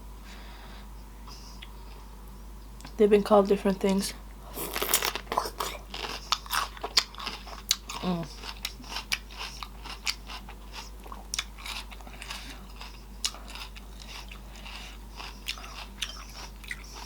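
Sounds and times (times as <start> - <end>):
wet mouth sounds: 4.6 - 10.2
crisp chewing crunches: 4.6 - 17.0.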